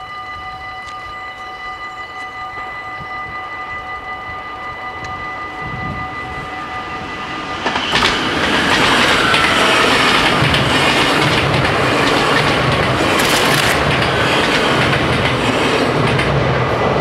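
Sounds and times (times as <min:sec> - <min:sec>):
level-crossing bells ringing: 0:00.0 - 0:07.6
train wheel and track noise: 0:00.0 - 0:17.0.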